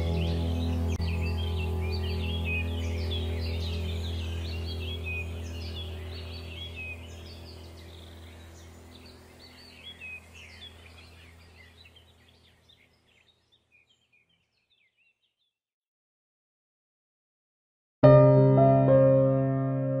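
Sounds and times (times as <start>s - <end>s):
steady low hum: 0.0s - 13.0s
small birds chirping: 0.0s - 15.6s.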